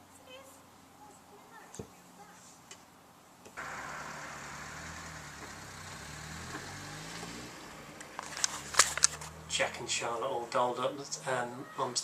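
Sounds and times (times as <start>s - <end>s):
vehicle engine idling: 3.6s - 9.8s.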